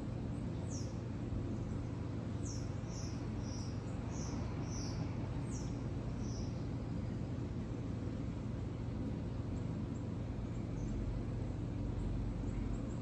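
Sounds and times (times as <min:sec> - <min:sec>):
songbird high chirps: 0:00.3 - 0:01.0, 0:01.6 - 0:06.7.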